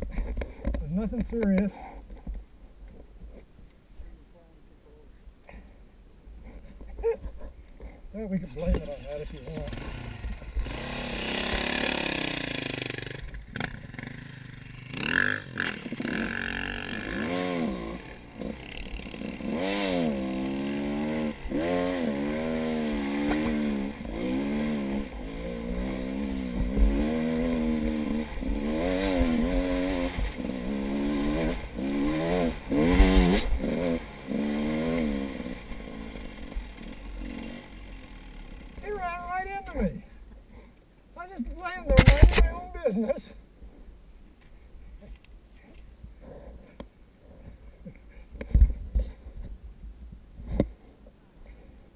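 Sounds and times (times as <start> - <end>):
knocks and scrape: 0.0 - 3.5
motorcycle engine revving: 8.6 - 39.7.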